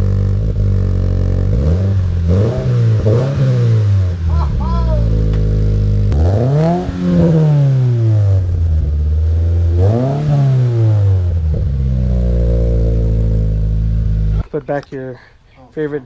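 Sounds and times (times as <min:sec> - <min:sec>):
car engine idling and revving: 0:00.0 - 0:14.5.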